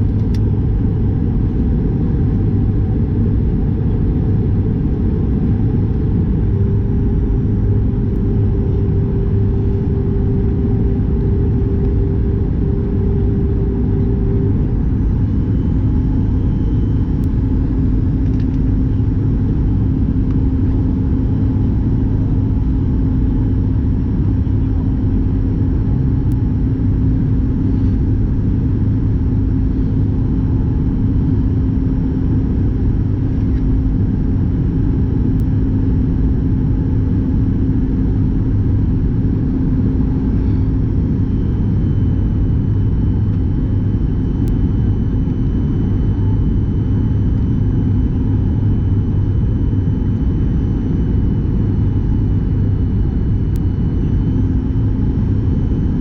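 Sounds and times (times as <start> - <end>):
airliner cabin engine rumble: 0.0 - 56.0
steady hum: 0.0 - 56.0.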